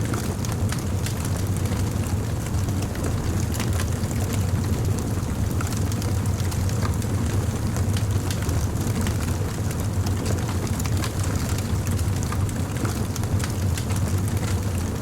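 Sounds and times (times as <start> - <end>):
wood fire crackling: 7.8 - 15.0.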